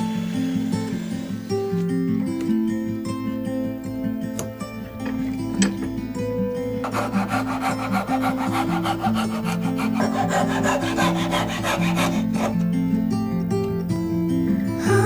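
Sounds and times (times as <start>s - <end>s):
hand saw cutting wood: 0.0s - 1.8s, 6.8s - 12.6s
acoustic guitar music: 0.0s - 15.0s.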